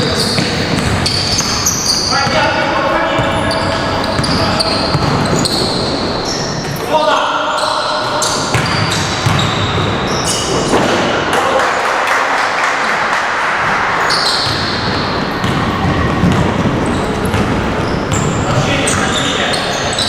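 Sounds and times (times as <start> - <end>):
sneakers squeaking on court: 0.0 - 10.9, 14.0 - 20.0.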